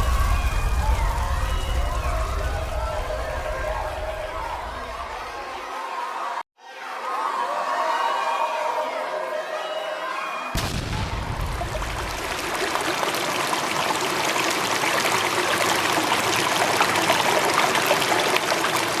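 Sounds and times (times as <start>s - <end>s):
stream water rushing: 10.9s - 19.0s.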